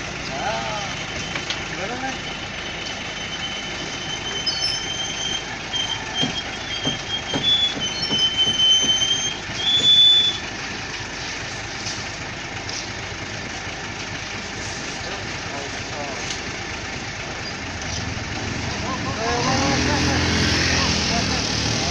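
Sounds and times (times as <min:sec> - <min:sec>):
concrete mixer truck engine: 0:00.0 - 0:21.9
high metallic squeal: 0:02.2 - 0:10.5
metal clunks: 0:06.1 - 0:10.0.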